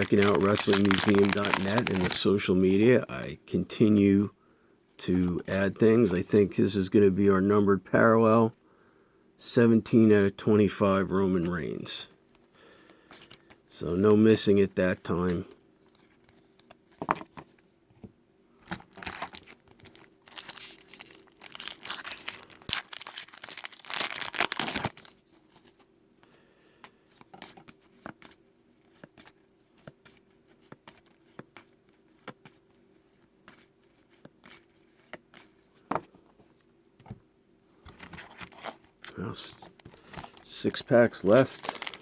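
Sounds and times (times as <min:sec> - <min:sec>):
plastic wrapper crinkling and tearing: 0:00.0 - 0:02.8, 0:18.6 - 0:25.8, 0:38.2 - 0:42.0.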